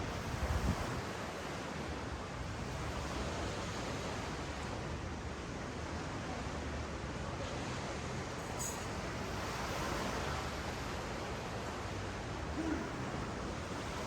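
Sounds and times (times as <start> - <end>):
wind on microphone: 0.0 - 1.2
ocean waves breaking on beach: 8.9 - 14.0.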